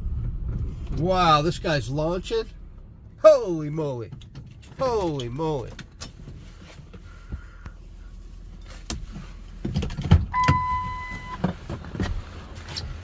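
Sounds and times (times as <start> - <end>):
car cabin rumble: 0.0 - 13.0
electronic beep: 10.4 - 11.4.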